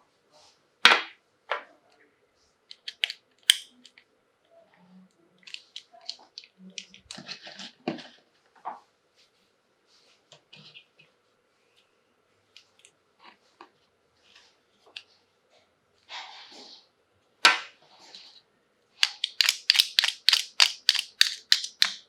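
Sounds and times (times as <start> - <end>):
plastic packaging crinkling: 19.0 - 22.0
toys clicking and tapping: 19.0 - 22.0.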